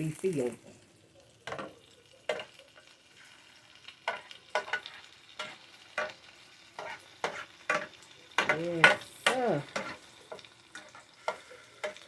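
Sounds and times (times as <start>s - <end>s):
bacon sizzling in a frying pan: 0.0s - 12.0s
utensil scraping a pan: 1.5s - 12.0s.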